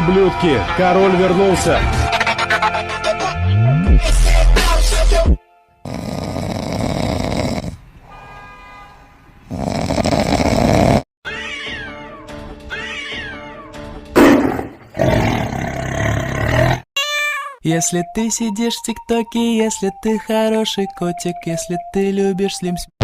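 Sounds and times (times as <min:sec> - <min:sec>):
music: 0:00.0 - 0:05.9, 0:11.3 - 0:14.5, 0:17.7 - 0:22.9.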